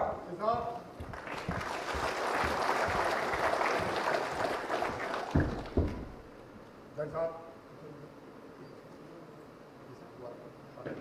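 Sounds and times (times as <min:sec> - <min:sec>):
audience clapping: 0:01.0 - 0:06.2.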